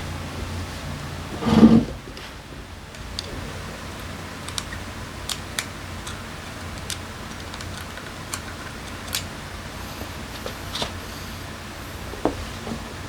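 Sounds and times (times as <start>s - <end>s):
steady low hum: 0.0s - 13.0s
small metal parts clicking: 4.4s - 9.3s.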